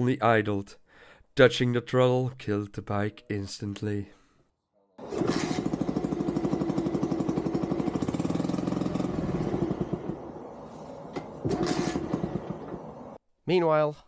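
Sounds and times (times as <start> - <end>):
small engine idling: 5.0 - 13.2.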